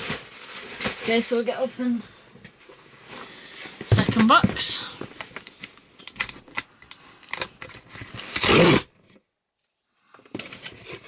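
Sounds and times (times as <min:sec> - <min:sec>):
tape or cardboard rasp: 0:08.0 - 0:08.9.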